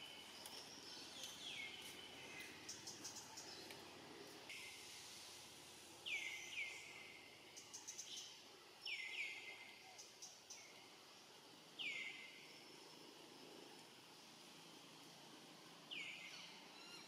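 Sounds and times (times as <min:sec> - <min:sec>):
faint outdoor background noise: 0:00.0 - 0:17.0.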